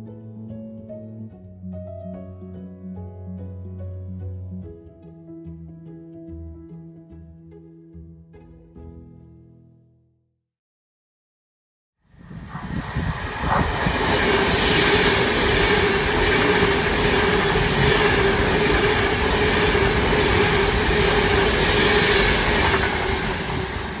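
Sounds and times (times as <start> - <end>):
train passing at speed: 12.1 - 24.0.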